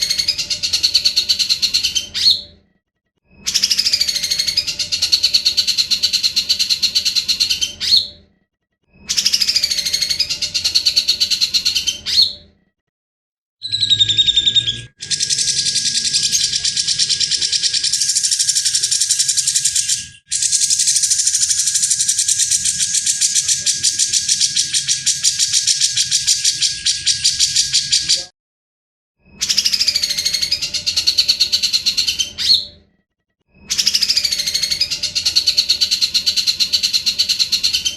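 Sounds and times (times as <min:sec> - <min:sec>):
songbird singing rasping trills: 0:13.6 - 0:28.3, 0:29.4 - 0:32.8, 0:33.6 - 0:37.9.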